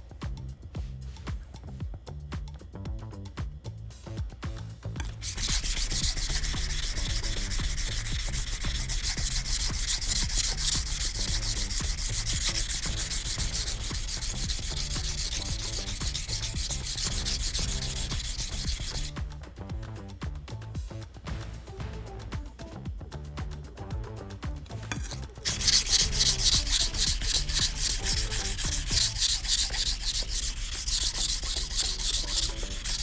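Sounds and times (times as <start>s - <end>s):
soft background music: 0.0s - 33.0s
knife scraping on whetstone: 5.0s - 19.2s, 24.7s - 33.0s.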